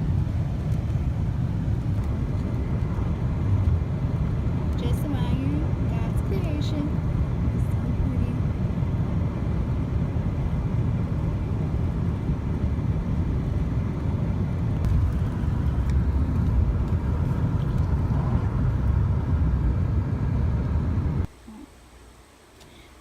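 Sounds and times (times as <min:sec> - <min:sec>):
car engine rumble: 0:00.0 - 0:23.0
tyre and wind noise: 0:08.5 - 0:21.3.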